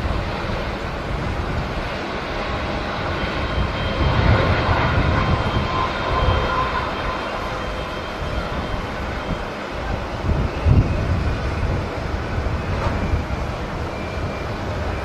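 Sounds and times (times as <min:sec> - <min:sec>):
jet engines rumbling with whine: 0:00.0 - 0:15.0
wind buffeting microphone: 0:00.0 - 0:15.0.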